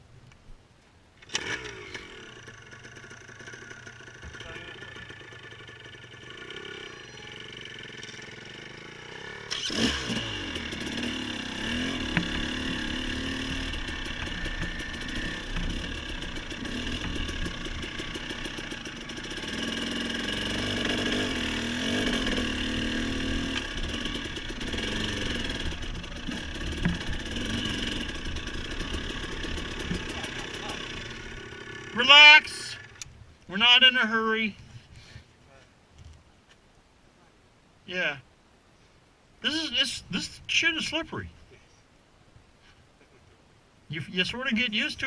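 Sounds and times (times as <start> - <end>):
motorcycle engine revving: 1.2 - 33.0.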